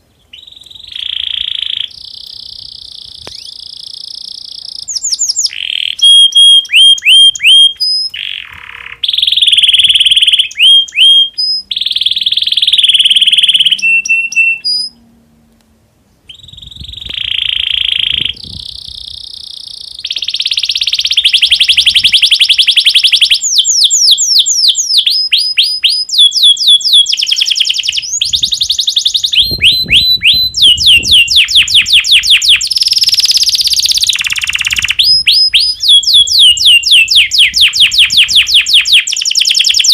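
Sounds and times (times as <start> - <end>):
canary singing trills: 0.0 - 15.1, 16.3 - 39.9.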